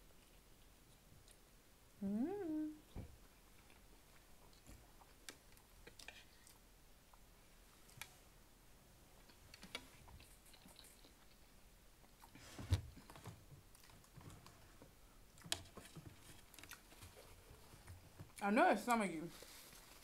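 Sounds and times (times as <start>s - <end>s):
chewing food: 3.2s - 8.1s, 9.2s - 18.4s.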